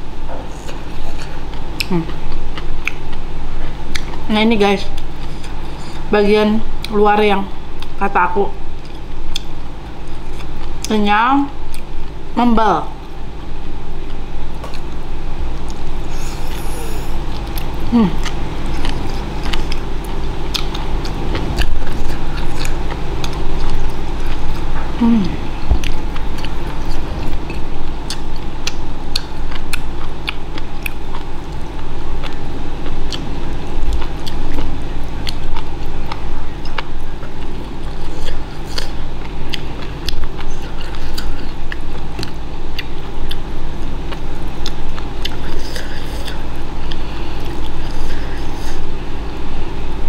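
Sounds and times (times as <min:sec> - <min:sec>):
steady low hum: 0:00.0 - 0:50.0
chewing and mouth smacking: 0:00.6 - 0:03.2, 0:03.9 - 0:04.3, 0:08.8 - 0:11.0, 0:14.0 - 0:15.0, 0:15.6 - 0:24.9, 0:25.8 - 0:43.5, 0:44.1 - 0:48.8.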